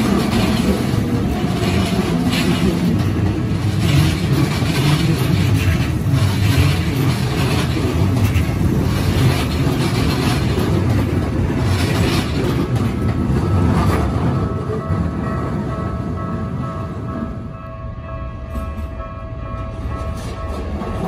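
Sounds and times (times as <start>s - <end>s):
wheel clacks: 0.0s - 15.6s
train wheels rumbling on rails: 0.0s - 21.0s.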